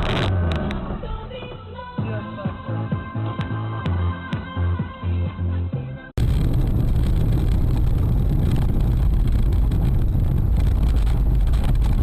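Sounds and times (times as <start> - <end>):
car engine and road noise: 0.0 - 2.2, 6.2 - 12.0.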